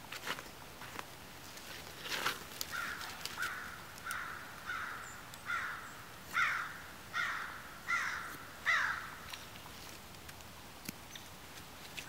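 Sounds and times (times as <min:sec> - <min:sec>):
bird calling: 0:02.7 - 0:09.5.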